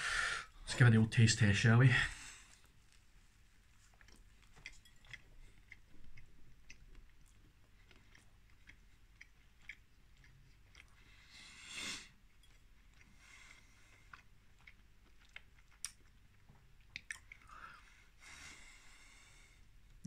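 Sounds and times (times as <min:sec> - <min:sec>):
person chewing with mouth closed: 0:02.6 - 0:18.2.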